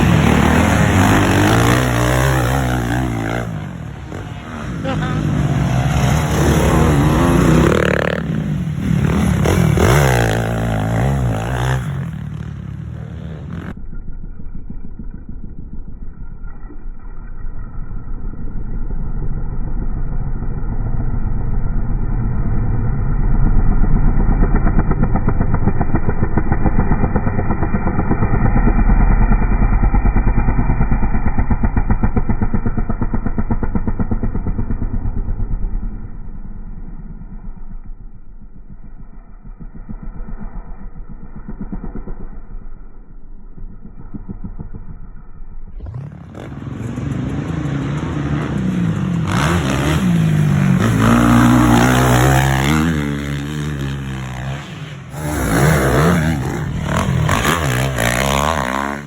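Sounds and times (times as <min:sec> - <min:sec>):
dirt bike engines revving: 0:00.0 - 0:13.8, 0:43.8 - 0:59.0
muffled dirt bike engine running: 0:00.0 - 0:59.0.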